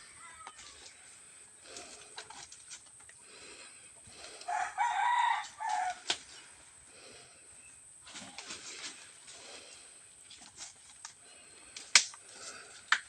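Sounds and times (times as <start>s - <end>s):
rooster crowing: 4.4s - 6.1s.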